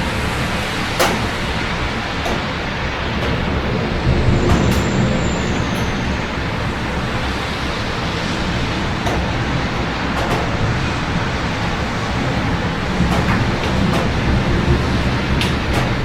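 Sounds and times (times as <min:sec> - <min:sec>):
steady rain: 0:00.0 - 0:16.0
traffic on wet streets: 0:00.0 - 0:16.0.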